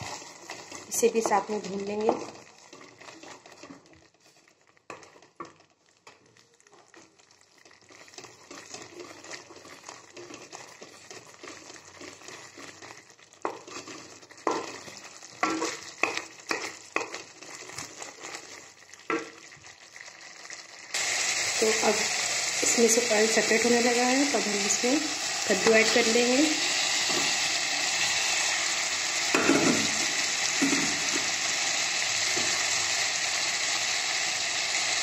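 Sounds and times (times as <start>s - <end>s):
wooden spatula scraping pan: 0.0s - 5.6s, 7.9s - 19.2s
faint sizzle of frying: 0.0s - 35.0s.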